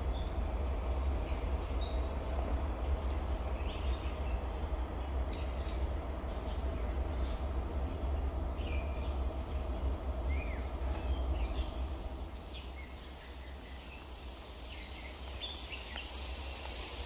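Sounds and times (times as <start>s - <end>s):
light hiss: 7.2s - 17.0s.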